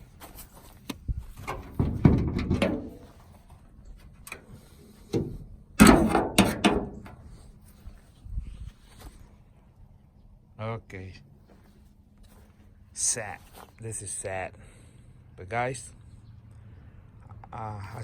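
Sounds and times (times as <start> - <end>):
handling knocks and scrapes: 0.0 - 8.1.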